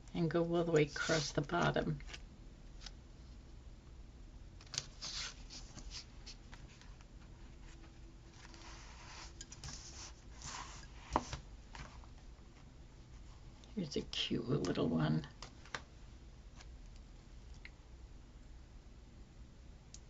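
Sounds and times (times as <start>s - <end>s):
paper rustling: 4.6s - 12.1s.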